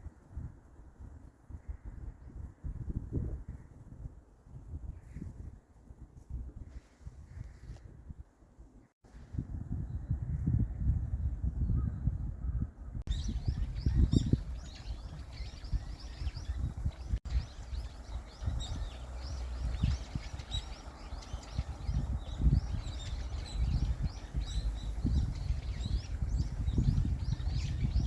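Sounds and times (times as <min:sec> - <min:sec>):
small birds chirping: 0:13.1 - 0:28.0.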